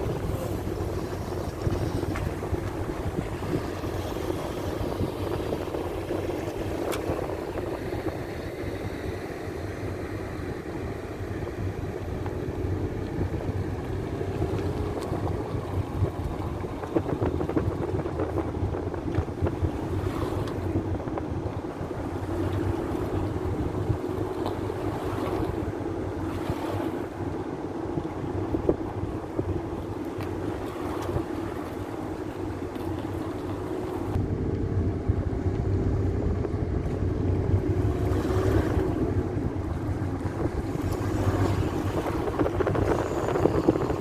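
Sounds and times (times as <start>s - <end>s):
wind buffeting microphone: 0.0s - 44.0s.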